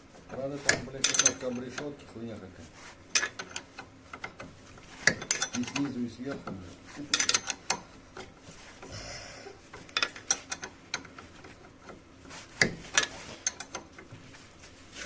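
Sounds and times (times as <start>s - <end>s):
hand tools clanking: 0.2s - 2.0s, 3.1s - 8.4s, 9.7s - 14.1s.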